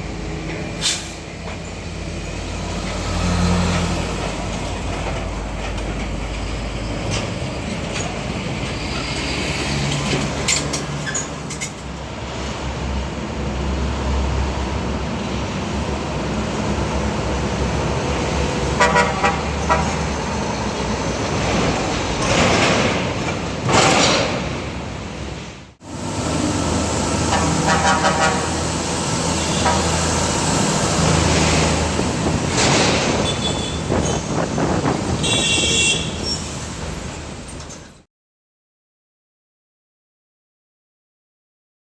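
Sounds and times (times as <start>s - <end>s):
trucks rumbling past: 0.0s - 38.1s
vehicle horns honking: 18.7s - 20.1s, 27.1s - 30.2s, 33.1s - 34.3s, 35.1s - 36.6s.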